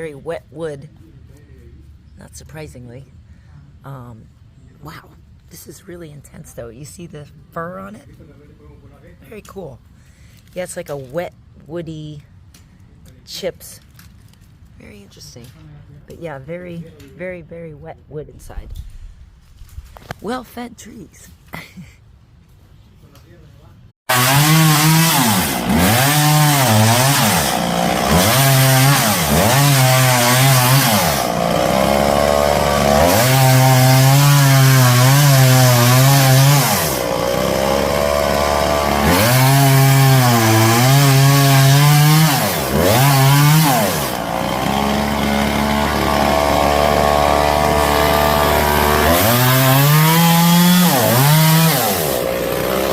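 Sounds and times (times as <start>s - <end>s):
chainsaw cutting wood: 24.1s - 52.9s.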